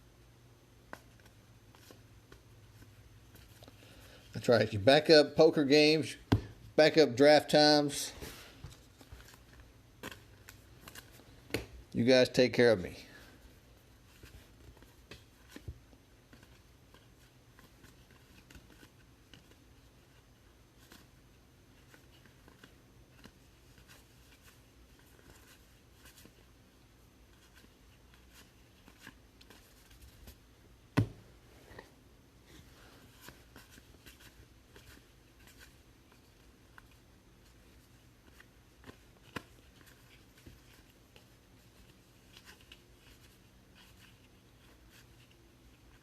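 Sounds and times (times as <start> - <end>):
cards rustling and sliding: 0.9 - 4.6, 7.6 - 12.8, 13.4 - 31.9, 32.5 - 46.0.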